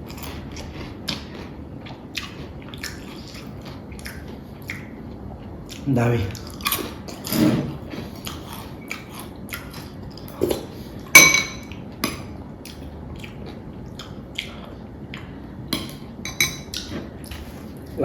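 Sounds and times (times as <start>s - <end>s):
chewing: 0.0s - 10.8s, 11.7s - 15.4s
utensils clinking on a plate: 10.4s - 12.3s, 15.8s - 17.0s.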